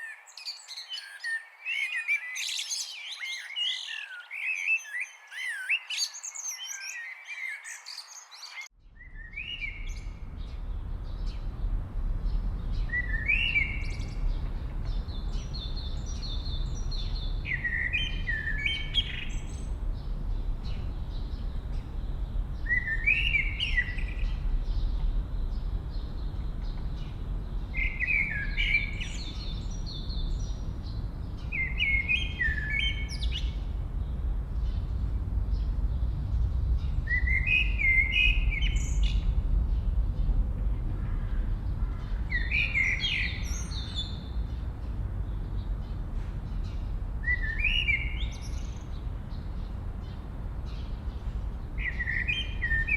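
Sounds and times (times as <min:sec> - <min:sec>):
bird repeating song phrase: 0:00.0 - 0:10.1
songbirds chirping: 0:00.0 - 0:52.9
steady low rumble: 0:08.8 - 0:52.9.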